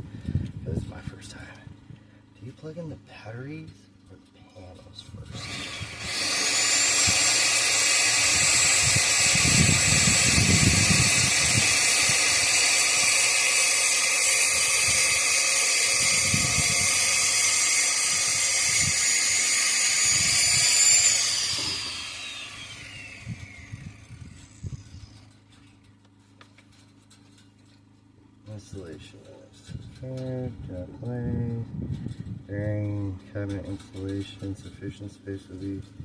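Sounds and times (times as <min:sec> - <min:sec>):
power tool motor whining: 0:05.2 - 0:25.7.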